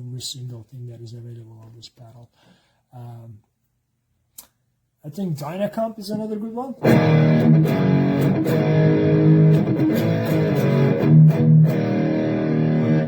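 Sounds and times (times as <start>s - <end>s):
electric guitar notes and chords: 6.8s - 13.0s.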